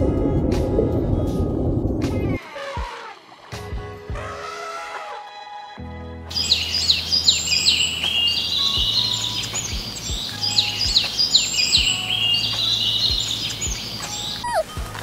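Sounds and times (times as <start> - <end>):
steady low hum: 0.0 - 2.4
birds singing and chirping: 6.3 - 15.0.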